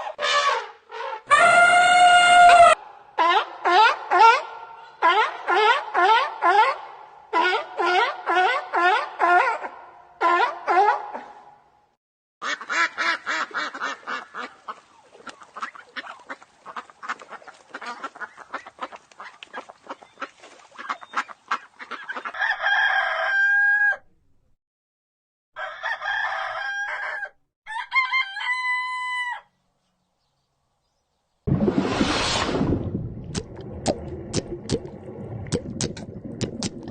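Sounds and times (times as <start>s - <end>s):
rooster crowing: 22.4s - 24.1s, 25.6s - 29.5s.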